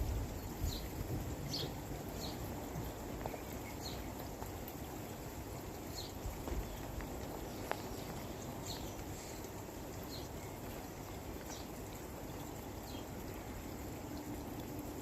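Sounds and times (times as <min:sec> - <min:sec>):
faint ticks: 0:05.9 - 0:12.0.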